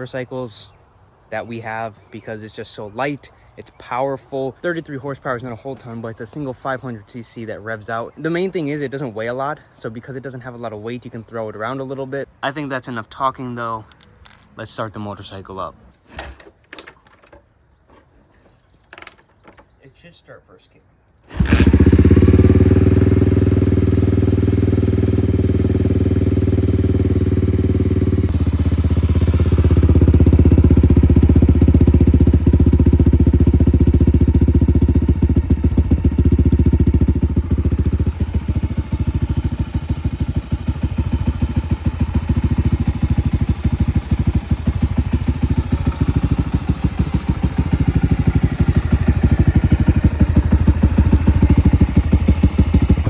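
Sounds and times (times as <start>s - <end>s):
motorcycle engine idling: 21.3s - 53.0s.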